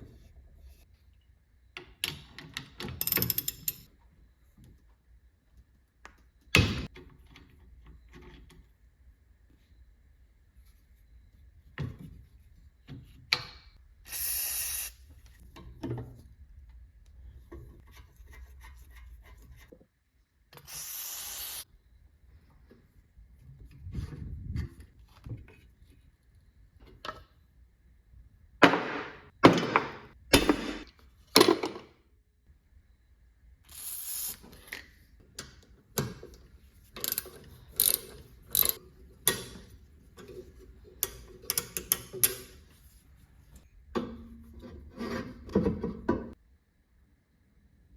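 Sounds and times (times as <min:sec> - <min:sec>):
metal clicks and ratcheting: 0:37.0 - 0:39.6.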